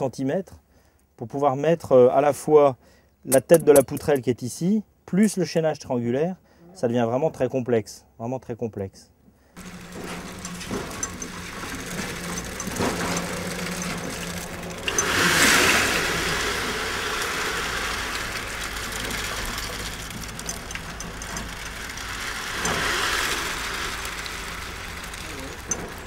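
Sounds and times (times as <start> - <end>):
concrete mixer engine running: 9.6 - 26.0
wet concrete pouring: 9.6 - 26.0.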